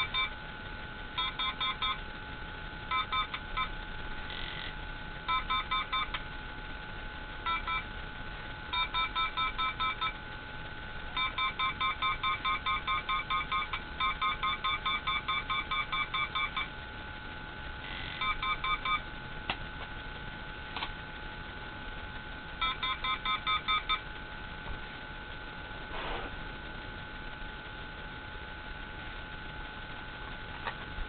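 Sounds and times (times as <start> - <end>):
rf detector rapid beeps: 0.0 - 0.4, 1.2 - 2.0, 2.9 - 6.2, 7.4 - 7.9, 8.7 - 10.2, 11.1 - 16.8, 17.8 - 19.1, 22.6 - 24.0.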